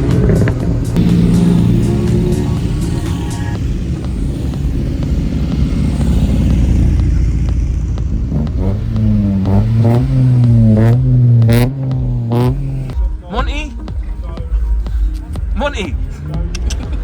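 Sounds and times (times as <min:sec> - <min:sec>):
car engine running loudly: 0:00.0 - 0:17.0.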